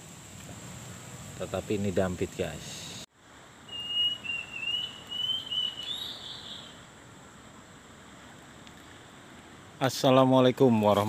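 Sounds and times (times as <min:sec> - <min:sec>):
bird warbling song: 0:03.7 - 0:06.8.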